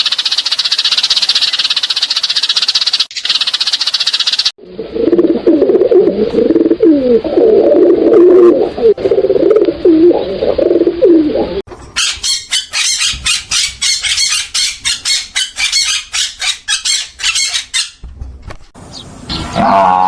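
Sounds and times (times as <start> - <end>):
fast high chirps: 0.0 - 4.6
birds cooing: 4.6 - 11.6.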